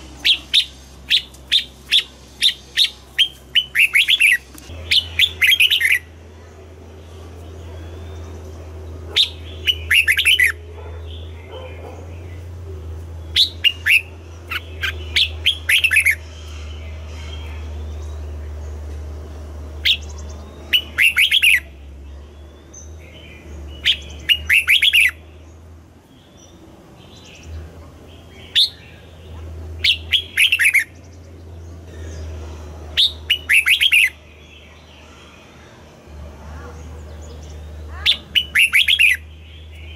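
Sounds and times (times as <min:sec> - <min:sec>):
bird whistling phrases: 0:09.1 - 0:10.6, 0:20.7 - 0:21.8, 0:23.8 - 0:25.2, 0:29.8 - 0:30.9, 0:33.0 - 0:34.2, 0:37.9 - 0:39.3.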